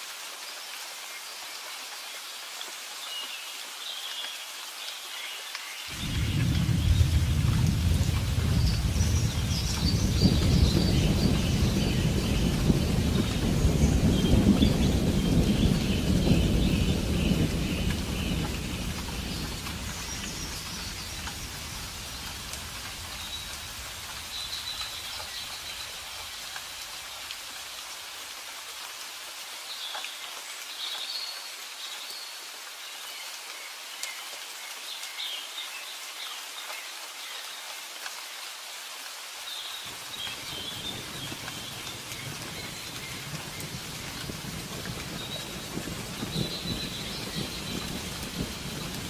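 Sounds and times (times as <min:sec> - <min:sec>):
steady rain hiss: 0:00.0 - 0:49.0
low thunder rumble: 0:05.9 - 0:25.9, 0:39.9 - 0:49.0.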